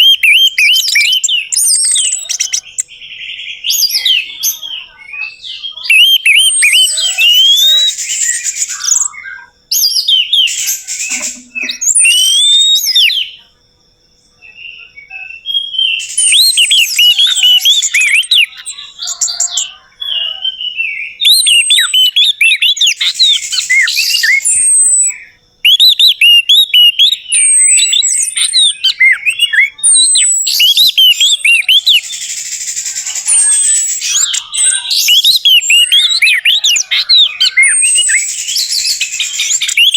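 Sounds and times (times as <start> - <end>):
thrush singing: 10.4 - 13.0.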